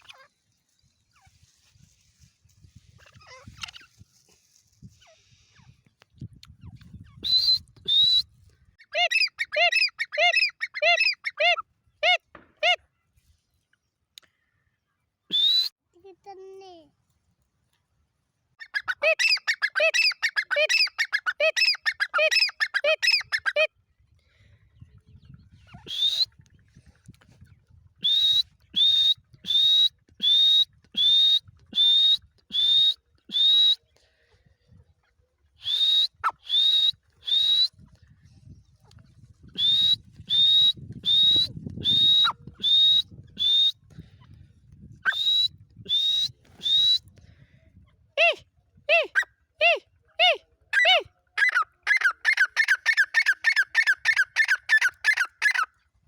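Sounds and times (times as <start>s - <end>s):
partridge calling: 8.8s - 12.8s, 18.6s - 23.6s, 50.8s - 55.7s.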